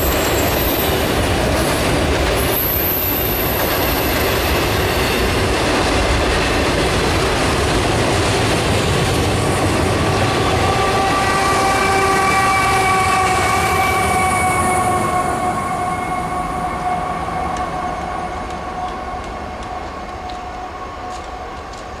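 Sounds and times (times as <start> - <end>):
pitched locomotive whine: 0.0 - 22.0
train rail rumble: 0.0 - 22.0.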